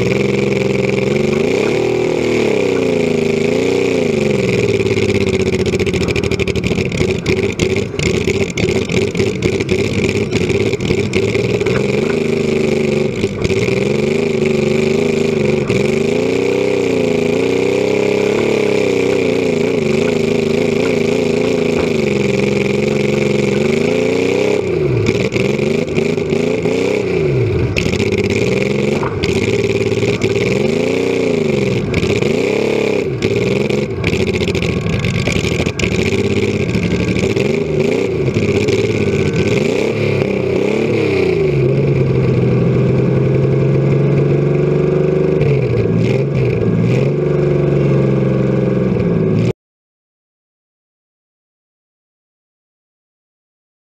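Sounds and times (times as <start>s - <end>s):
car engine revving loudly: 0.0s - 49.5s.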